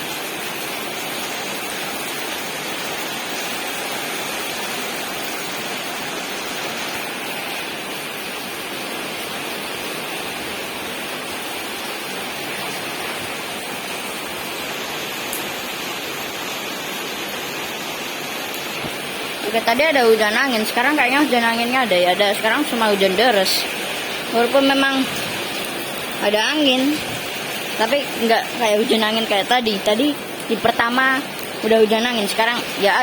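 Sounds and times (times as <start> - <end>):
heavy rain pouring: 0.0 - 33.0.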